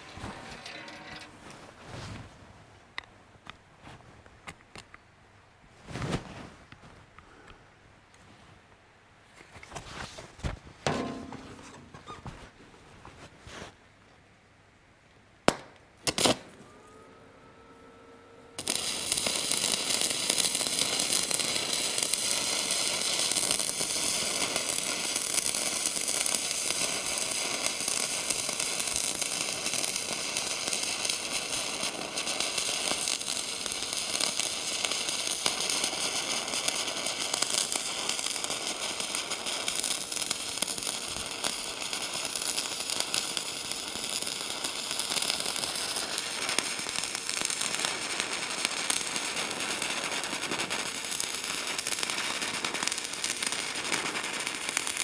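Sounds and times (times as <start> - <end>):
welding arc crackling: 0.0 - 1.4, 18.6 - 55.0
metal knocks with ring: 10.9 - 12.0.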